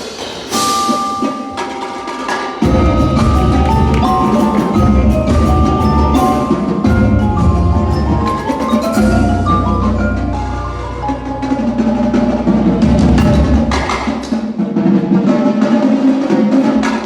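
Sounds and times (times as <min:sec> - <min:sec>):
drum and percussion hits: 0:00.0 - 0:17.0
mallet keyboard melody: 0:00.5 - 0:14.2
deep bass: 0:02.6 - 0:14.0.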